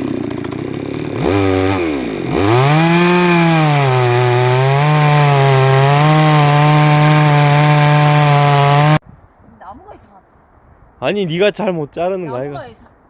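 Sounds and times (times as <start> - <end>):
chainsaw cutting wood: 0.0 - 9.0.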